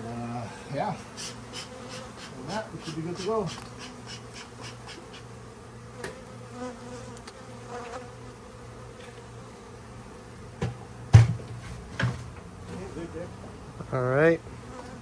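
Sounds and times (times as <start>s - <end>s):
bees buzzing: 0.0s - 15.0s
sharp knocks: 10.6s - 12.3s.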